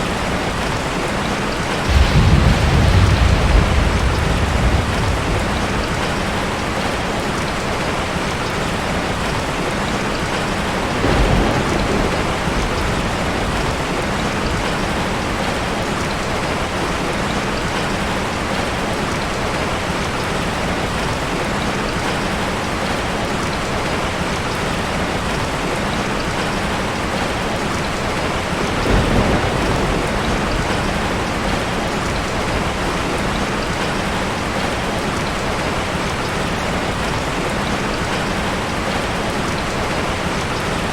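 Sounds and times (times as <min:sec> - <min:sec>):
heavy rain falling: 0:00.0 - 0:40.9
low rumbles of thunder: 0:01.8 - 0:08.0, 0:09.2 - 0:17.0, 0:28.0 - 0:34.1.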